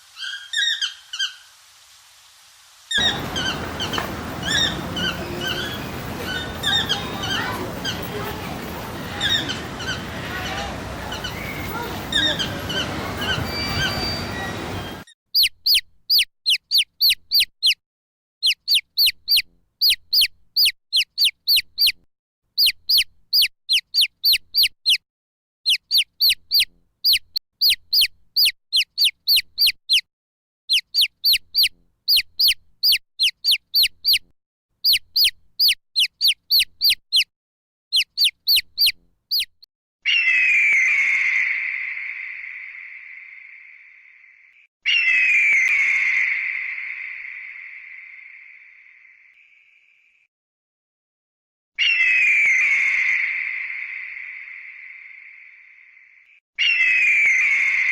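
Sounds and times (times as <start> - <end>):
steady bird call: 2.9 - 17.8, 18.4 - 22.0, 22.6 - 25.0, 25.7 - 30.1, 30.7 - 34.2, 34.8 - 37.3, 37.9 - 50.0, 51.8 - 55.9, 56.6 - 57.9
bird high down-slurred notes: 3.0 - 15.1.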